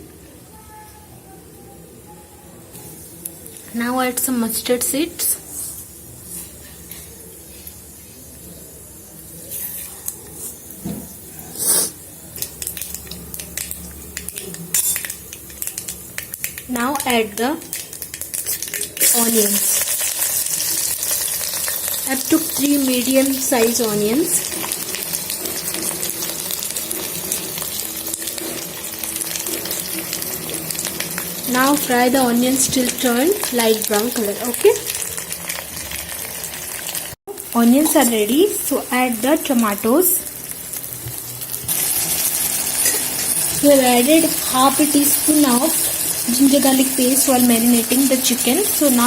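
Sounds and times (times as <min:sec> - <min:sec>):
hot oil hissing: 0:04.1 - 0:49.0
seeds crackling and popping: 0:11.7 - 0:22.7.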